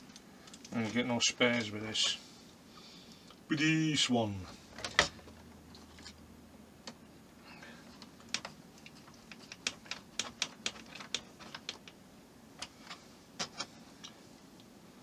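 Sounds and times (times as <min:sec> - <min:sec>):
small parts clicking and tapping: 0:00.0 - 0:02.1, 0:07.9 - 0:12.0, 0:12.6 - 0:14.7.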